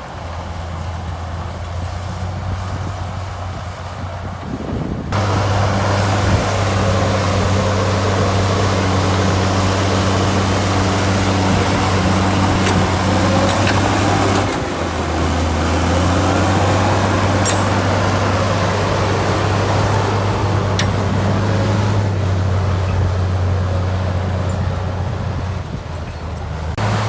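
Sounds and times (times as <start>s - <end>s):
diesel engine running: 0.0s - 27.0s
faint clanks: 11.5s - 15.0s, 16.4s - 22.2s.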